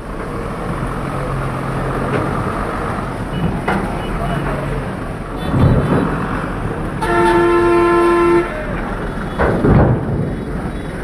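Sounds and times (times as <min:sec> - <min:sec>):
vehicle engines: 0:00.0 - 0:11.0
vehicle horn: 0:07.0 - 0:08.7.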